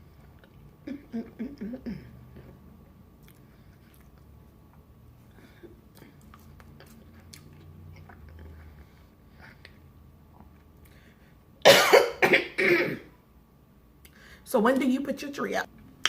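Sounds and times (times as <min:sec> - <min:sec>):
woman coughing: 0:11.6 - 0:13.1.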